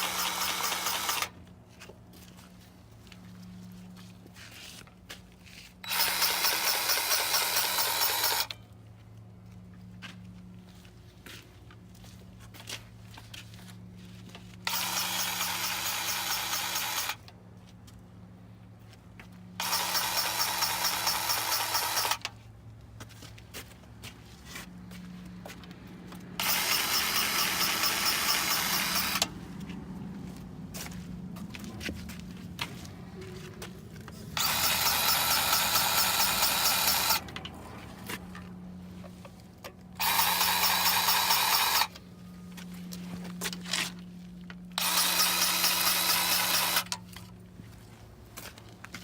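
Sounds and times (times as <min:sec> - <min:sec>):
grease gun pulsing whir: 0:00.0 - 0:01.4, 0:05.8 - 0:08.6, 0:14.6 - 0:17.3, 0:19.6 - 0:22.3, 0:26.4 - 0:29.4, 0:34.2 - 0:37.4, 0:40.0 - 0:42.0, 0:44.7 - 0:47.3.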